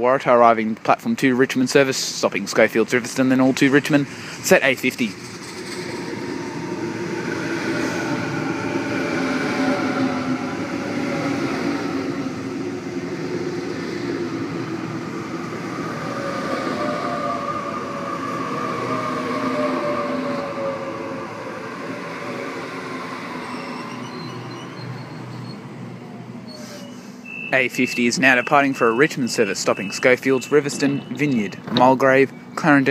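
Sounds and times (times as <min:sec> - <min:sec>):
train wheels rumbling on rails: 0:00.0 - 0:25.8
electric train motors whining: 0:03.4 - 0:31.6.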